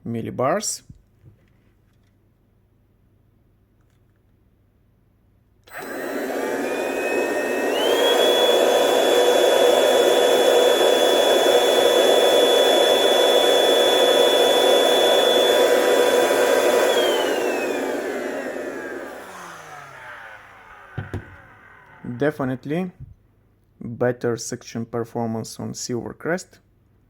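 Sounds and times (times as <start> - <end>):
vacuum cleaner motor whine: 5.7 - 23.0.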